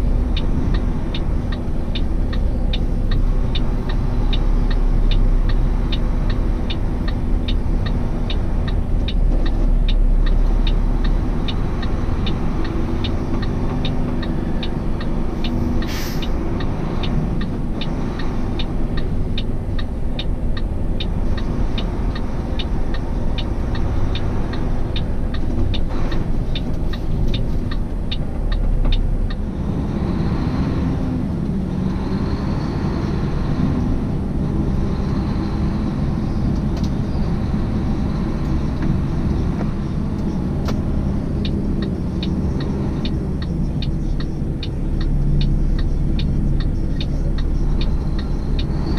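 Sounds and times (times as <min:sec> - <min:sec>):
diesel engine running: 0:00.0 - 0:48.9
turn signal clicking: 0:00.2 - 0:29.6, 0:35.7 - 0:48.9
air hiss: 0:15.8 - 0:16.3.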